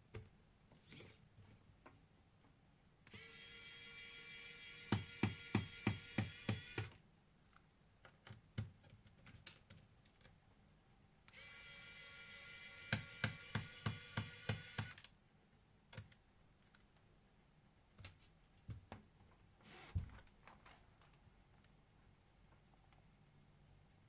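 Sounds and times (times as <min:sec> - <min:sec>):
small electric motor whining: 0:03.1 - 0:07.0, 0:11.3 - 0:15.0.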